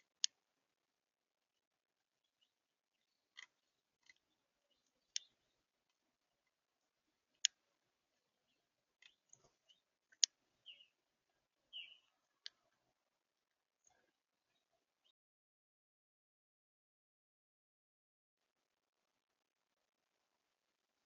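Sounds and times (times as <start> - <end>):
faint bird ticks: 0.0 - 0.4, 2.2 - 6.6, 7.2 - 13.0
soft bird chirps: 2.0 - 6.6, 7.3 - 13.0.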